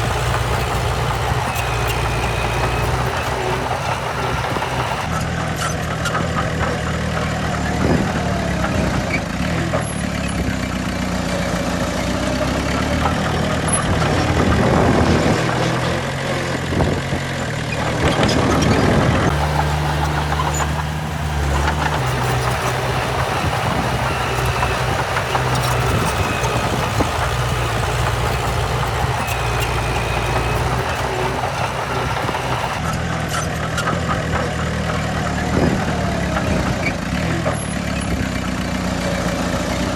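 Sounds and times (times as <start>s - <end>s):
heavy diesel engine running: 0.0s - 5.1s, 19.3s - 32.9s.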